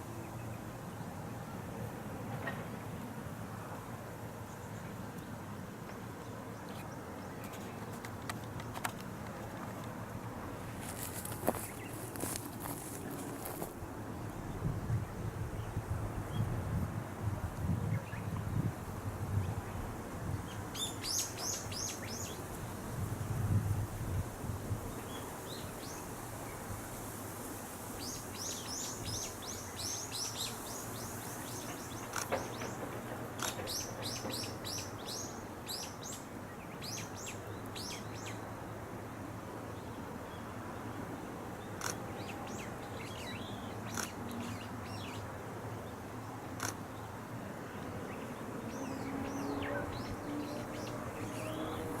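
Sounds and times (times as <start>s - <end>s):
outdoor background noise: 0.0s - 52.0s
small birds singing: 17.8s - 22.8s, 28.0s - 38.5s, 39.7s - 52.0s.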